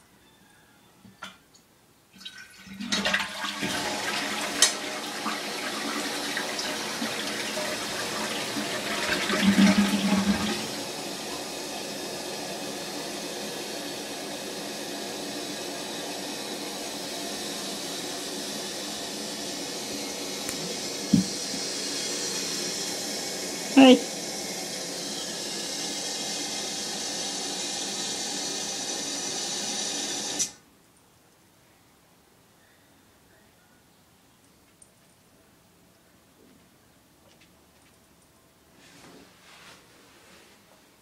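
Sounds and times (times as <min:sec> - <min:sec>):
toilet flushing: 0:02.1 - 0:30.6
tank refilling hiss: 0:06.1 - 0:30.6.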